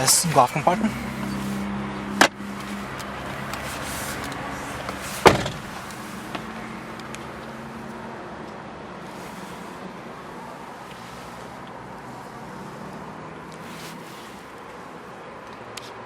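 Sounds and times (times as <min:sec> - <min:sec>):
low cabin hum: 0:00.0 - 0:06.9.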